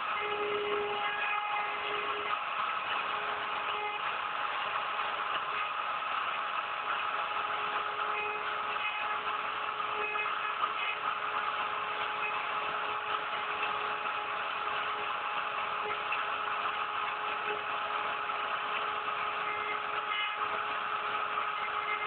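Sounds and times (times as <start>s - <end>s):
cnc router spindle whining: 0.0s - 22.0s
router cutting wood: 0.0s - 22.0s.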